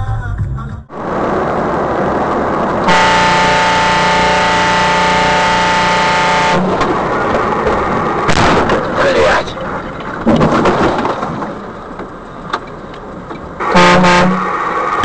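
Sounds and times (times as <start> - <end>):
road and engine noise: 0.0 - 15.0
vehicle horn blast: 2.9 - 6.8, 13.6 - 14.5.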